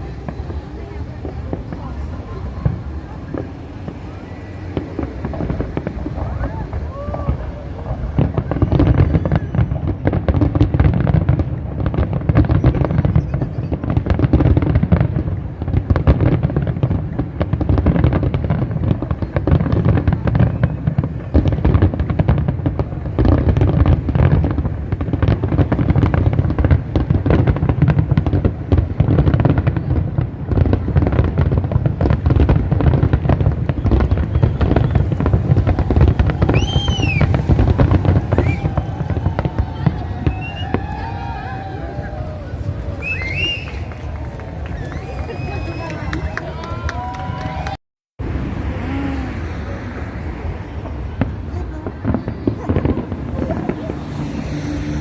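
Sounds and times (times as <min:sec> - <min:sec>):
fireworks booming and crackling: 0:00.0 - 0:55.0
high whistle: 0:36.4 - 0:37.4, 0:38.3 - 0:38.8, 0:40.2 - 0:40.8, 0:43.0 - 0:44.0.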